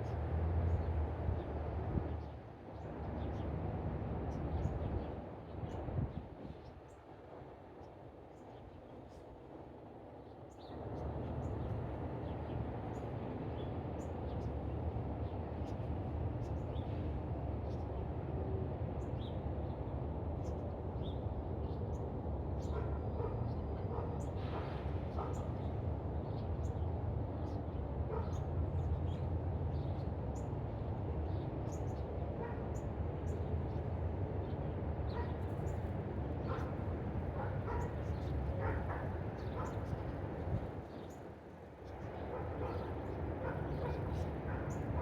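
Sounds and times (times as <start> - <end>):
small birds chirping: 35.2 - 45.0.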